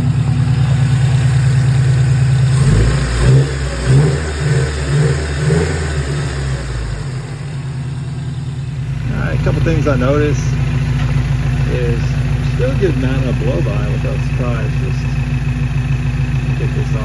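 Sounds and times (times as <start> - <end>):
car engine idling unevenly: 0.0 - 17.0.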